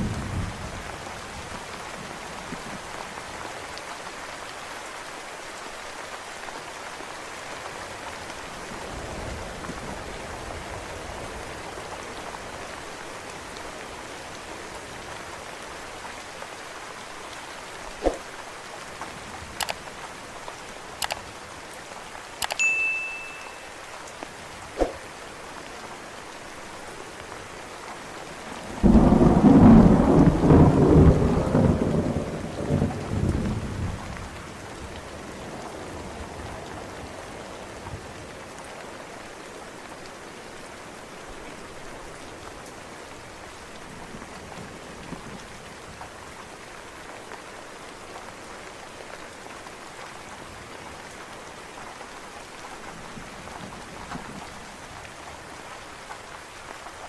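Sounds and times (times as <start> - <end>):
steady rain falling: 0.0 - 57.0
sharp ticks: 22.4 - 22.6
thunder rumble: 28.7 - 34.3.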